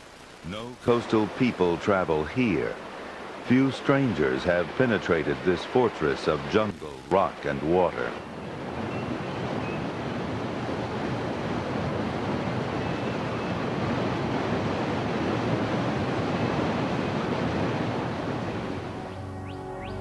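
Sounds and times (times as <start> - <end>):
river rapids rushing: 0.0 - 8.7.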